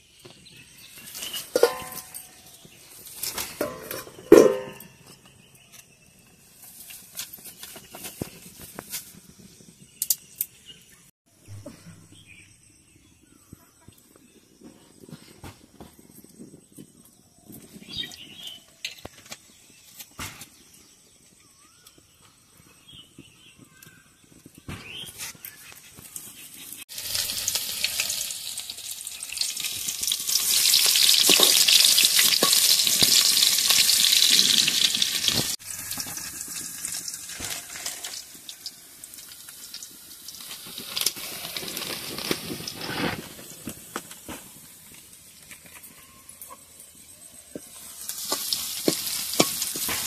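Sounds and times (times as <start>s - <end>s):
onions sizzling in oil: 0.5s - 5.4s, 25.6s - 50.0s.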